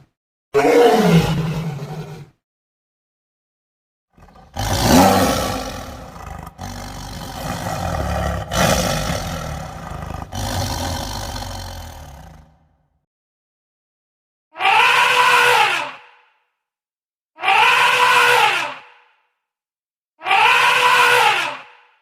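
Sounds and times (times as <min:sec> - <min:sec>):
large animal roaring: 0:00.6 - 0:02.3, 0:04.2 - 0:12.7.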